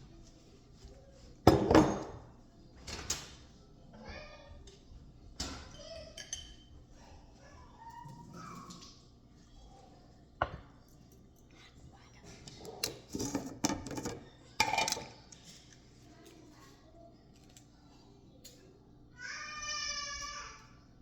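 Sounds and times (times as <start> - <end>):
dishes and utensils clattering: 1.5 - 2.4, 5.4 - 6.9, 12.2 - 16.4.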